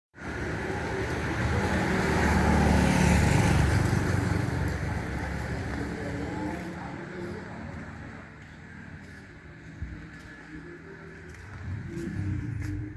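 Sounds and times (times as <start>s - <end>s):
vehicle engine running: 0.2s - 12.9s.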